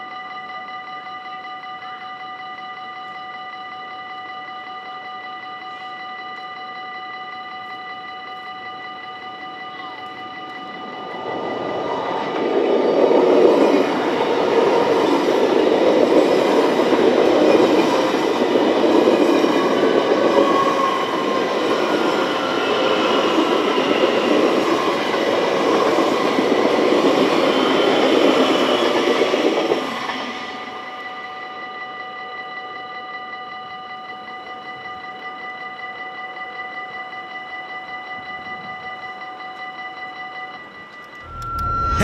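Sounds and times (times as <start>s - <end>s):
crossing warning bell ringing: 0.0s - 42.0s
train wheels rumbling on rails: 10.0s - 31.1s.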